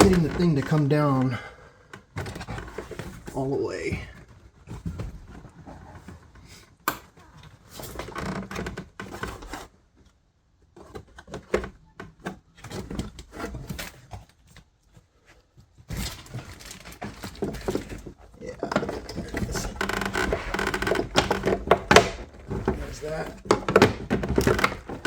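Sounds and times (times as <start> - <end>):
plastic trim clicks and knocks: 18.7 - 25.0.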